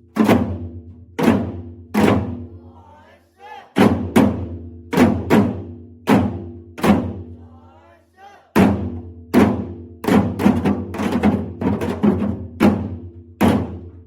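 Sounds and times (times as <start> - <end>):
person calling out: 7.5 - 8.5.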